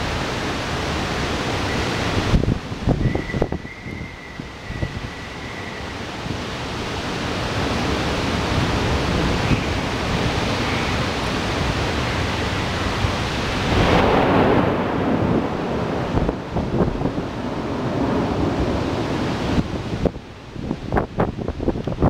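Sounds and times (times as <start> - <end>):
gusting wind: 0.0 - 22.0
heavy rain downpour: 0.0 - 22.0
wind buffeting the microphone: 0.0 - 22.0.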